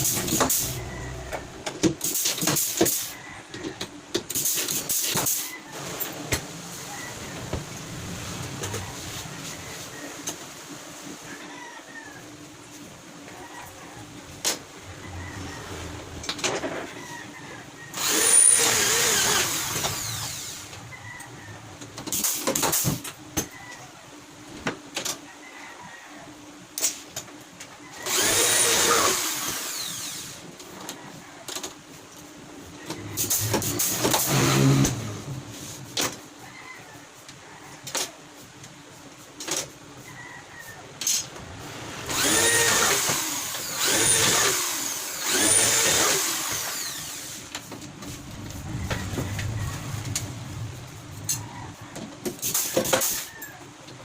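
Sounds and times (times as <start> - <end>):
power drill driving screws: 18.0 - 20.7, 28.0 - 30.4, 42.0 - 47.4.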